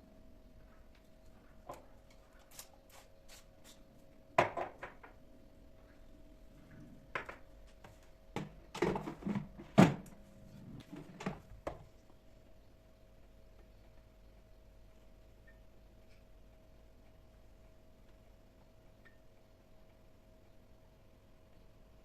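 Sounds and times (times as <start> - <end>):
faint steady hum: 0.0 - 22.0
kitchen objects knocking and clattering: 4.4 - 5.2, 7.1 - 7.4, 8.4 - 10.1.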